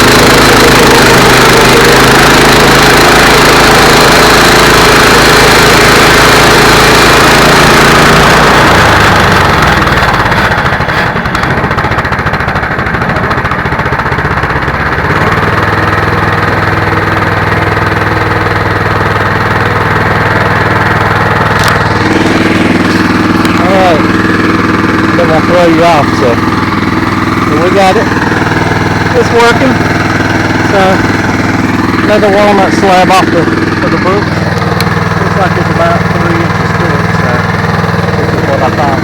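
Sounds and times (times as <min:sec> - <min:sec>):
saw blade cutting log: 0:00.0 - 0:11.5, 0:25.1 - 0:26.5, 0:27.4 - 0:28.2
gas engine running under load: 0:00.0 - 0:39.0.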